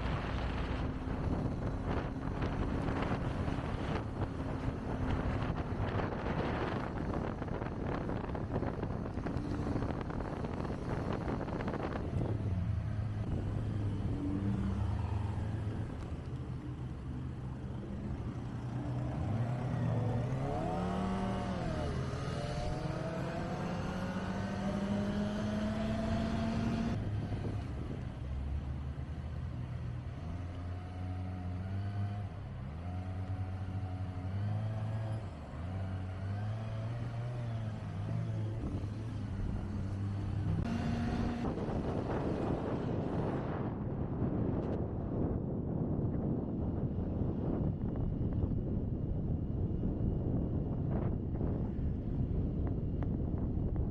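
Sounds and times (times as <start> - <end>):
motorcycle engine revving: 18.1 - 27.8, 30.7 - 43.6.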